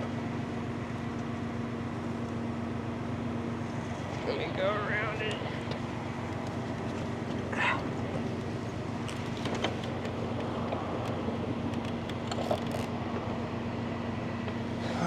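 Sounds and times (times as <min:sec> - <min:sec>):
tow truck engine humming: 0:00.0 - 0:15.0.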